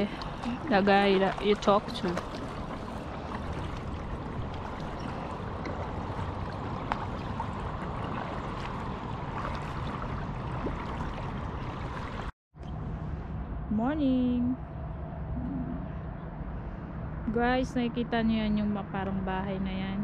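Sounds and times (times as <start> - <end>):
water lapping around kayak: 0.0 - 12.3.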